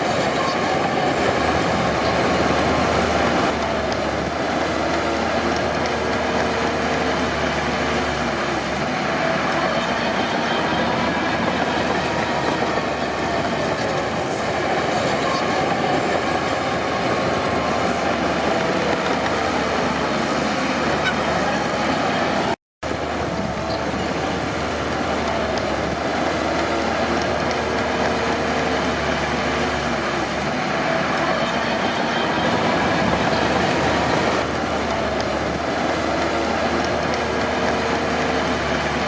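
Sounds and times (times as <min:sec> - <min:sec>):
steel tracks clanking: 0:00.0 - 0:03.6, 0:09.0 - 0:22.6, 0:30.2 - 0:34.5
bulldozer diesel engine: 0:00.0 - 0:39.0.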